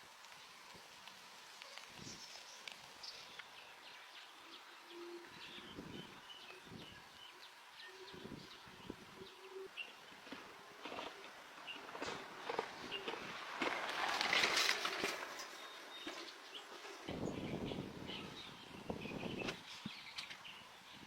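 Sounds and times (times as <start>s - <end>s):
birds chirping: 1.5s - 21.0s
bird cooing: 4.5s - 6.7s.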